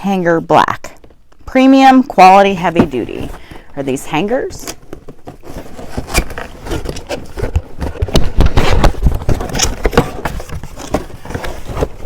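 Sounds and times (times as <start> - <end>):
packaging crinkling: 4.8 - 12.0.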